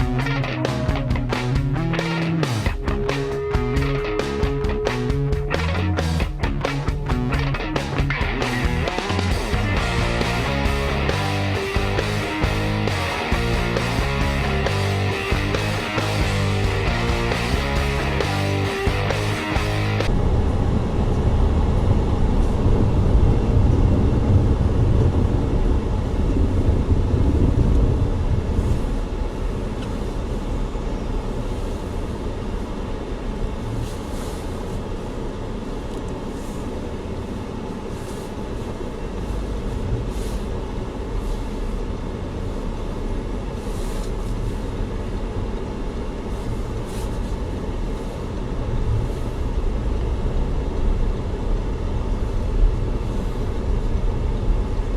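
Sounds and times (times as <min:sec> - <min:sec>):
vehicle engine and road rumble: 0:00.0 - 0:54.9.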